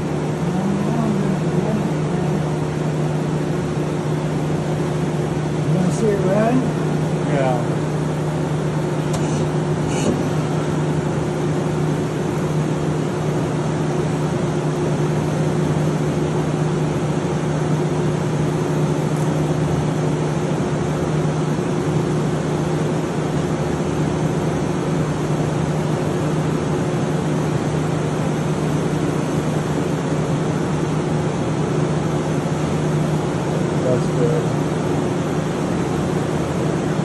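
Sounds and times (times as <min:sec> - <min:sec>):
lathe running: 0:00.0 - 0:37.0.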